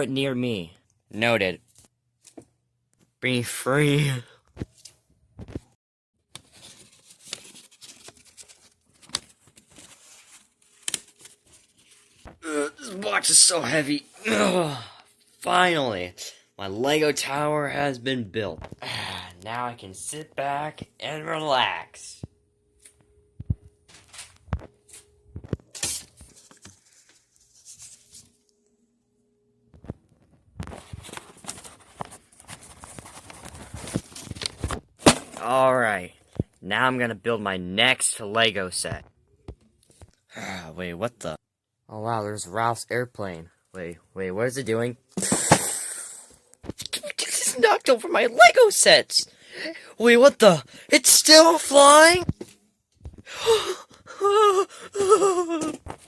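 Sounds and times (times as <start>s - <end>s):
paper rustling: 6.4s - 12.4s, 23.9s - 28.4s, 30.6s - 35.5s.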